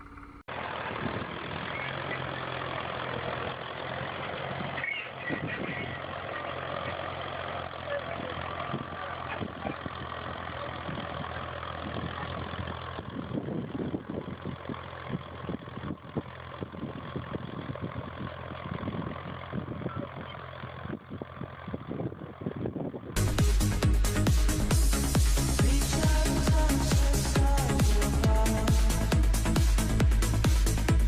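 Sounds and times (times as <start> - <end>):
engine running: 0.0 - 31.0
loud electronic music: 23.2 - 31.0.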